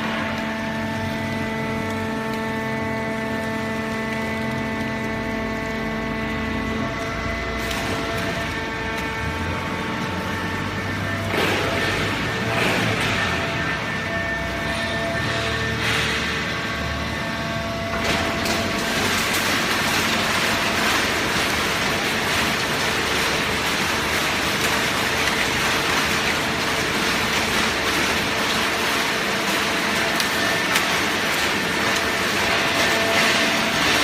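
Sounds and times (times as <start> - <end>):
machine hum: 0.0 - 34.0.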